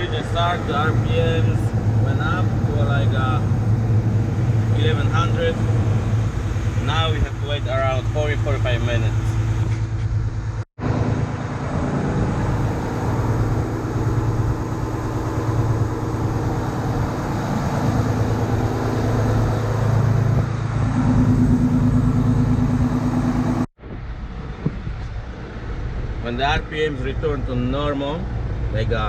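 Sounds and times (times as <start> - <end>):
steady higher hum: 0.0 - 24.6
truck diesel engine idling: 12.3 - 23.7.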